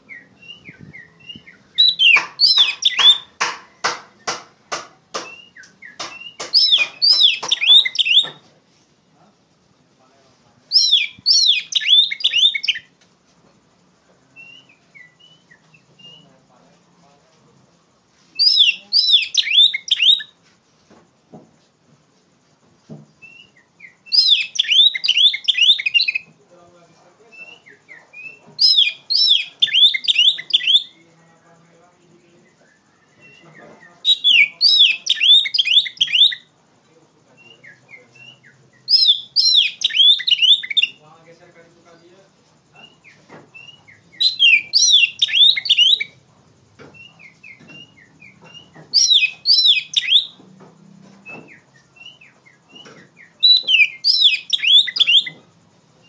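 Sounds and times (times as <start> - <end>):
bird singing whistled notes: 0.0 - 3.4, 5.2 - 8.4, 10.7 - 12.9, 14.3 - 16.4, 18.4 - 20.4, 23.2 - 26.3, 27.3 - 31.1, 32.1 - 36.5, 37.4 - 41.1, 42.8 - 46.2, 46.9 - 50.4, 51.2 - 56.0.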